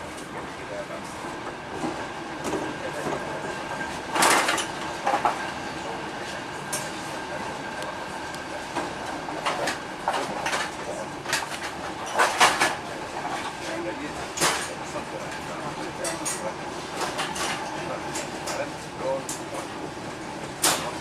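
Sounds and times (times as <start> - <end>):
train clacks and rattles: 0.0 - 21.0
train rolling rumble: 0.0 - 21.0.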